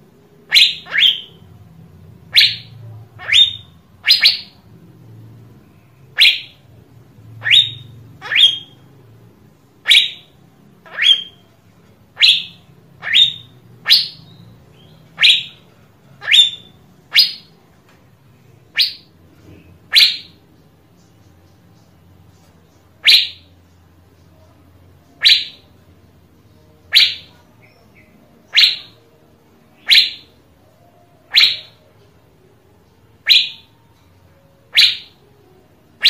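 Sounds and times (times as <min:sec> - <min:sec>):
bird whistling upward notes: 0:00.5 - 0:01.5, 0:02.3 - 0:04.6, 0:06.1 - 0:06.7, 0:07.4 - 0:08.8, 0:09.8 - 0:11.4, 0:12.2 - 0:17.6, 0:18.7 - 0:19.1, 0:19.9 - 0:20.4, 0:23.0 - 0:23.5, 0:25.2 - 0:25.7, 0:26.8 - 0:29.0, 0:29.8 - 0:30.3, 0:31.2 - 0:32.0, 0:33.2 - 0:33.9, 0:34.7 - 0:35.3.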